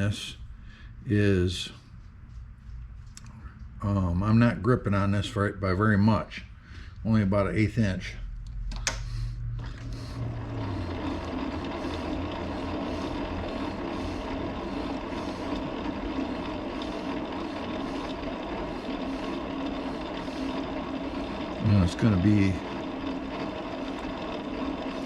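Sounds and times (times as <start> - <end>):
metal lathe running: 9.6 - 25.0.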